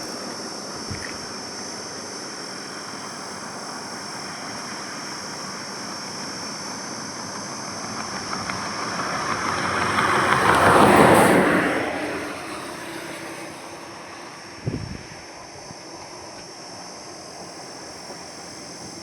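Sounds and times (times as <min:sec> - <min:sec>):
high-pitched hiss: 0:00.0 - 0:10.7, 0:12.7 - 0:19.0
highway traffic rush: 0:00.0 - 0:19.0.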